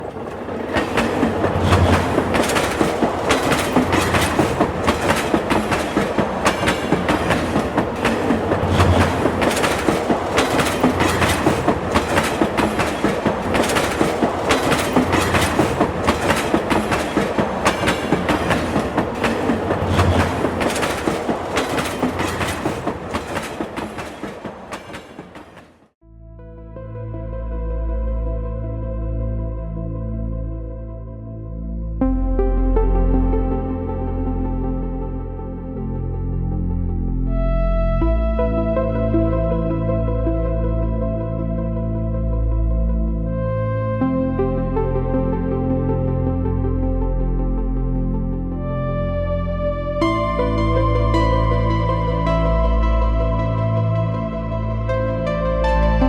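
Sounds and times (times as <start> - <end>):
train wheels clicking over rail joints: 0.0 - 25.9.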